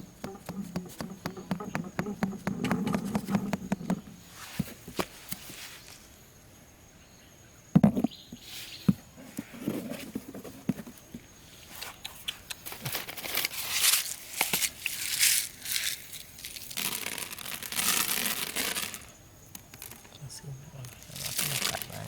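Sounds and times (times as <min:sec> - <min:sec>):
material rustling and crinkling: 0:12.7 - 0:19.1, 0:20.8 - 0:22.0.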